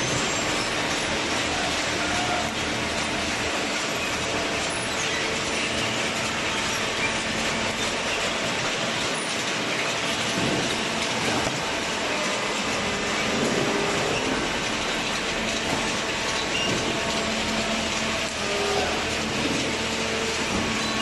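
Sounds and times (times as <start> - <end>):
baler machine running: 0.0 - 21.0.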